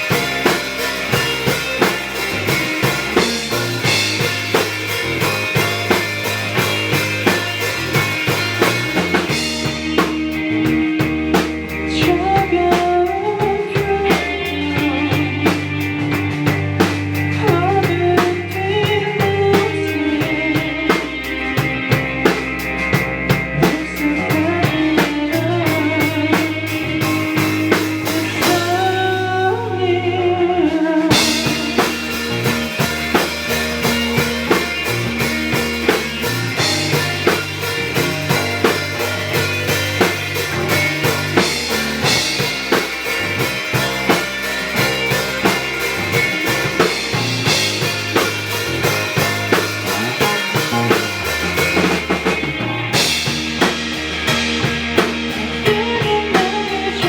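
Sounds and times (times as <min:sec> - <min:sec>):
drum kit with cymbals: 0:00.0 - 0:29.8, 0:30.7 - 0:57.0
rock band playing: 0:00.0 - 0:57.0.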